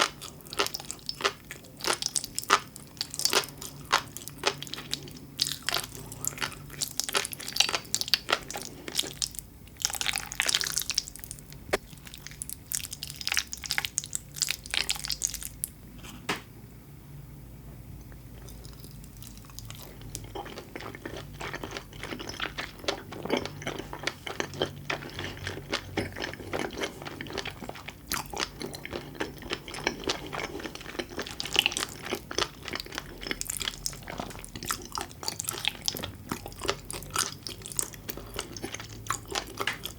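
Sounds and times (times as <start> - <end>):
wet chewing with small pops: 18.0 - 39.9.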